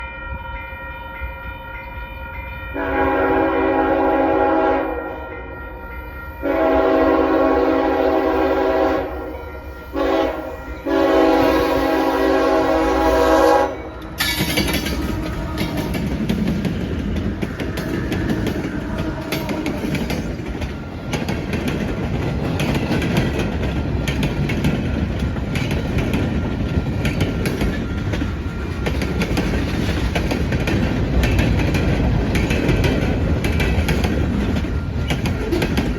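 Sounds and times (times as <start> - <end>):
train horn blasts: 0.0 - 16.8, 17.4 - 20.4
train rumbling past: 0.0 - 35.9
wheels clattering on rails: 14.0 - 35.9.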